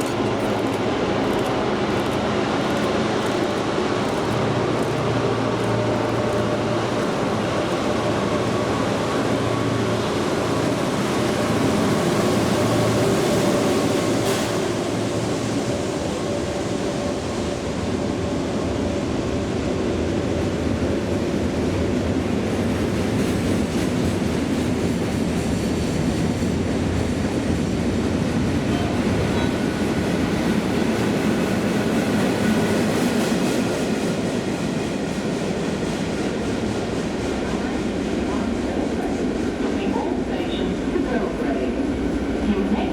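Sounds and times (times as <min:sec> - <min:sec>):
train wagons rolling over rails: 0:00.0 - 0:17.0.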